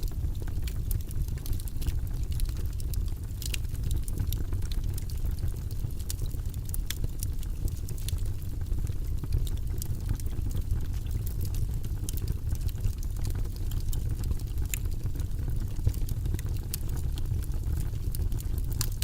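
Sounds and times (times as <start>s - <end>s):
fire crackling and popping: 0.0s - 19.0s
low rumble of flame: 0.0s - 19.0s.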